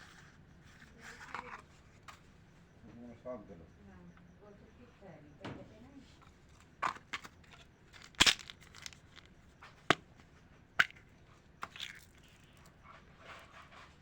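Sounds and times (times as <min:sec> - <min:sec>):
candy wrappers crinkling and tearing: 0:07.0 - 0:09.3, 0:11.6 - 0:12.5.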